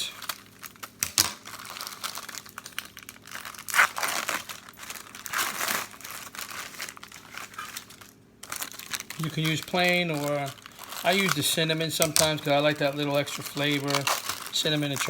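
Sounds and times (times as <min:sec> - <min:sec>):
plastic wrapper crinkling and tearing: 0:00.0 - 0:15.0.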